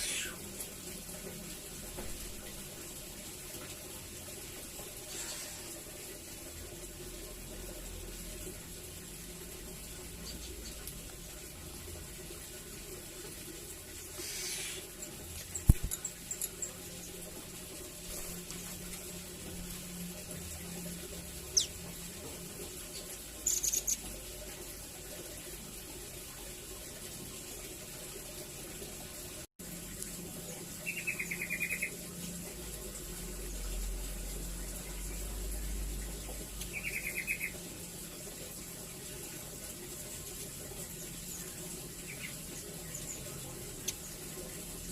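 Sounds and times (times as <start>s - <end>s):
steady hiss: 0.0s - 0.5s, 14.1s - 16.0s
bird chirps and trills: 21.4s - 21.9s, 22.9s - 24.1s, 30.8s - 32.0s, 36.6s - 37.6s.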